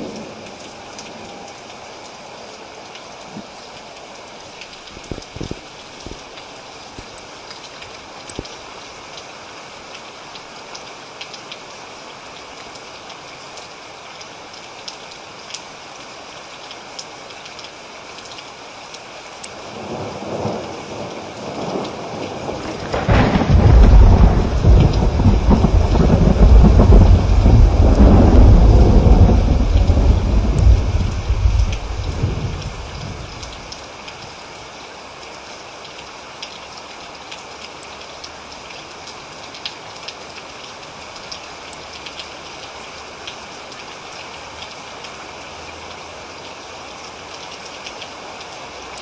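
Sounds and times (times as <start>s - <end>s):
steady rain falling: 0.0s - 49.0s
thunder rumbling: 19.7s - 33.8s.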